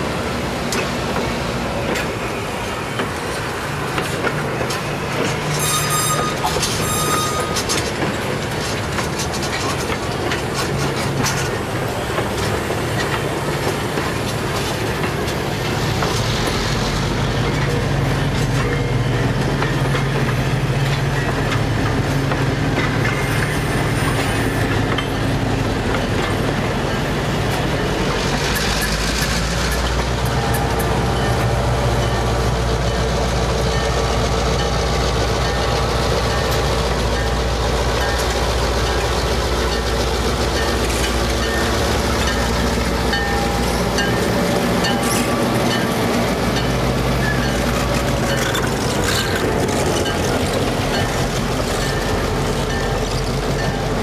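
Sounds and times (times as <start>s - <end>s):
train wheels rumbling and clattering: 0.0s - 54.0s
brief high squeals: 5.6s - 7.6s.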